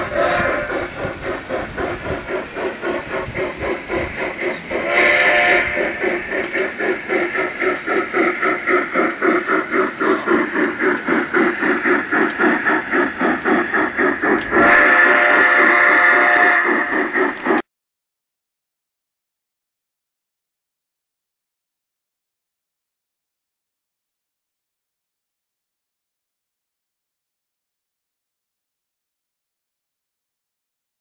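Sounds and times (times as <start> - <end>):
model steam locomotive chuffing: 0.0 - 17.6.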